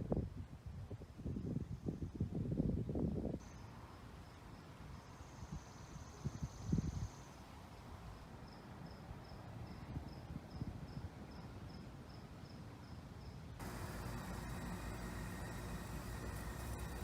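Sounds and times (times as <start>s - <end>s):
cricket chirping: 8.1s - 17.0s
loud steady hiss: 13.6s - 17.0s.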